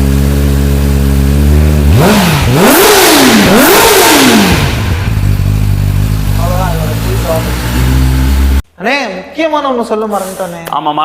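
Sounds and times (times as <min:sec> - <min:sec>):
motorcycle engine idling and revving: 0:00.0 - 0:08.6.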